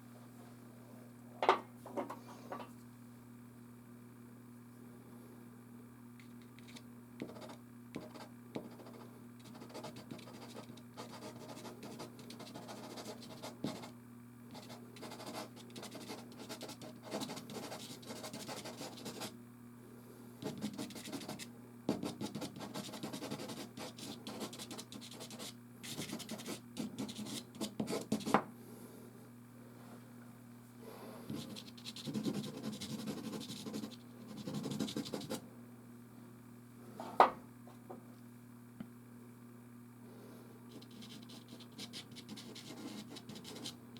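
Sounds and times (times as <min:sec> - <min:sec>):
steady low hum: 0:00.0 - 0:43.9
pastel scratching on canvas: 0:07.2 - 0:13.9, 0:14.6 - 0:19.3, 0:20.4 - 0:21.4, 0:22.0 - 0:28.3, 0:31.3 - 0:35.4, 0:40.7 - 0:43.8.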